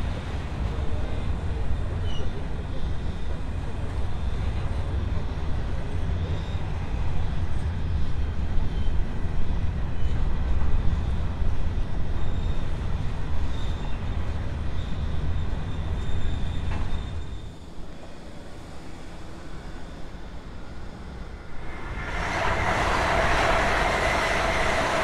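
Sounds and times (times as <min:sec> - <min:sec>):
freight wagons rumbling on rails: 0:00.0 - 0:25.0.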